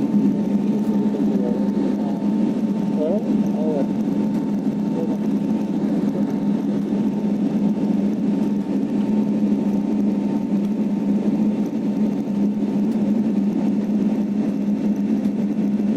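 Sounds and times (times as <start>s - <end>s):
airflow noise: 0.0s - 12.6s
jet engine drone: 0.0s - 15.9s.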